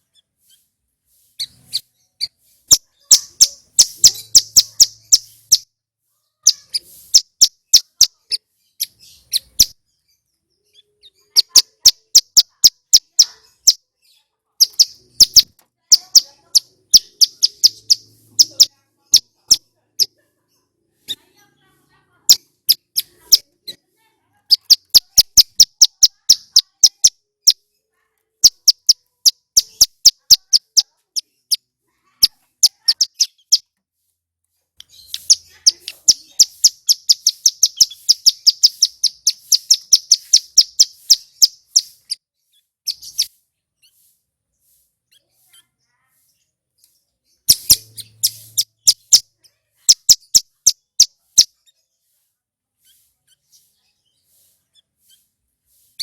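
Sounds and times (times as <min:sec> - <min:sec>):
bird singing rapid high notes: 0:01.4 - 0:05.7, 0:06.4 - 0:13.8, 0:14.6 - 0:20.1, 0:24.5 - 0:27.6, 0:28.4 - 0:31.6, 0:32.2 - 0:33.7, 0:34.8 - 0:42.2, 0:42.9 - 0:44.0, 0:47.3 - 0:51.6.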